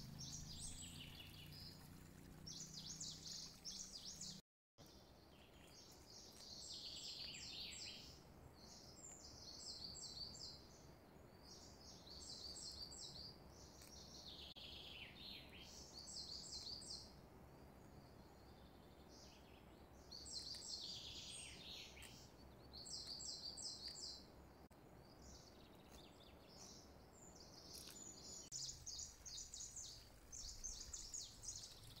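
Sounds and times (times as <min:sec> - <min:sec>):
low steady hiss: 0:00.0 - 0:32.0
small birds chirping: 0:00.0 - 0:32.0.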